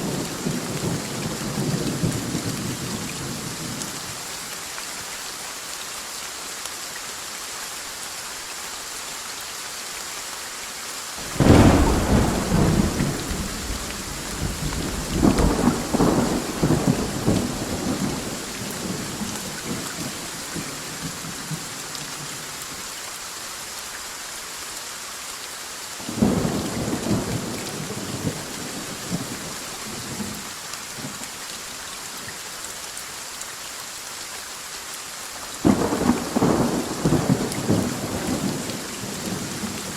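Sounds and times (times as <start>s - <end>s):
steady rain: 0.0s - 39.9s
thunder cracking and rumbling: 11.2s - 21.2s.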